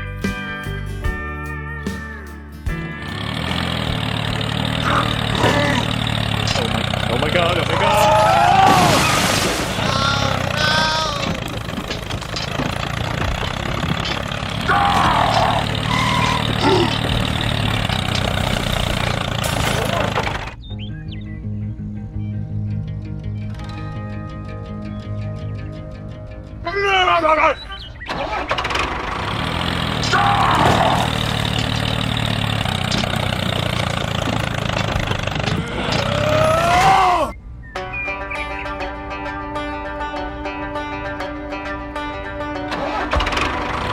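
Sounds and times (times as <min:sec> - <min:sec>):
small engine idling: 0:02.7 - 0:08.1, 0:10.1 - 0:20.6, 0:28.0 - 0:36.4, 0:42.7 - 0:43.9
pitched voice-like call: 0:09.8 - 0:11.4, 0:14.6 - 0:17.0, 0:35.5 - 0:37.4.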